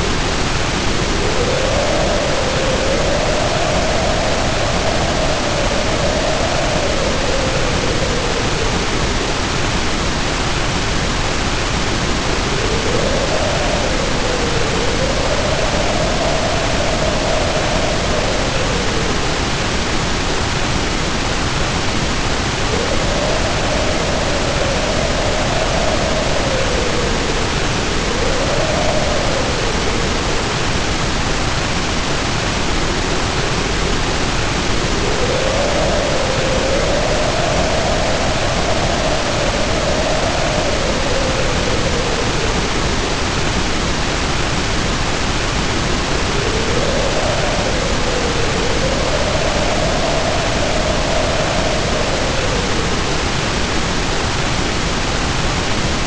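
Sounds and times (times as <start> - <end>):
heavy rain pouring: 0.0 - 56.0
howling wind: 0.0 - 56.0.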